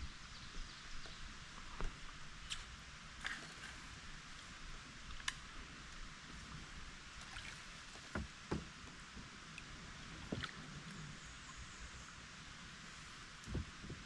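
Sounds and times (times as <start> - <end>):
dull knocks: 8.1 - 8.7.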